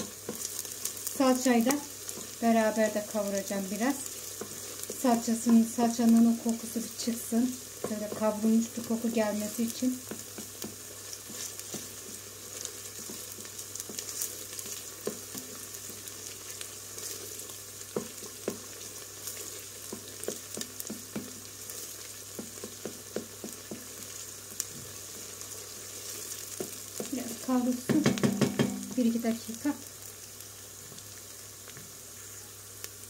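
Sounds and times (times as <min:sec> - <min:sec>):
onion sizzling in oil: 0:00.0 - 0:33.0
wooden spoon scraping a pot: 0:01.9 - 0:27.5.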